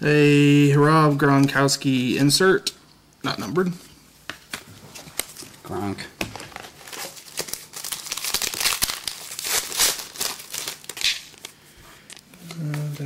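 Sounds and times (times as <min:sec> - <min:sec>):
wrapper tearing and crinkling: 0:06.4 - 0:11.6.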